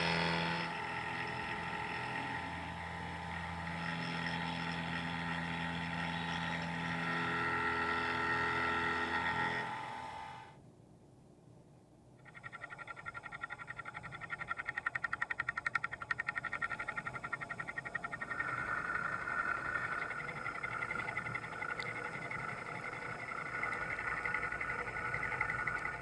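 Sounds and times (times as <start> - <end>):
machine tool cutting metal whine: 0.0 - 10.5, 16.4 - 26.0.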